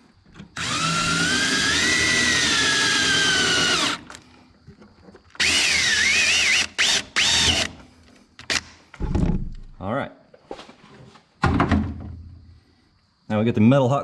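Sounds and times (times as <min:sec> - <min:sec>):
power drill boring sheet metal: 0:00.6 - 0:04.2, 0:05.4 - 0:07.8.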